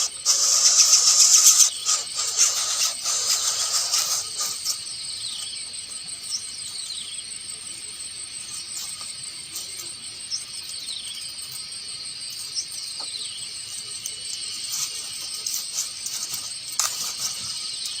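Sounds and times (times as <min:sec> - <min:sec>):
falling whistled bird calls: 0:00.0 - 0:07.2
birds calling: 0:00.0 - 0:18.0
high drone of insects: 0:00.0 - 0:18.0.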